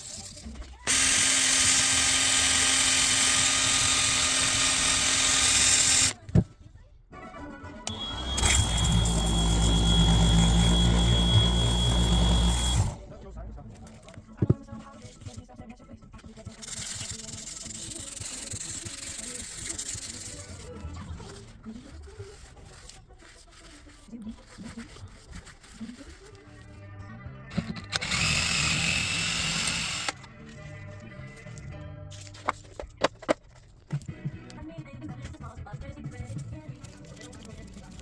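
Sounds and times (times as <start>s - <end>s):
electric power tool running: 0.9s - 6.2s, 7.9s - 13.0s, 27.9s - 30.2s.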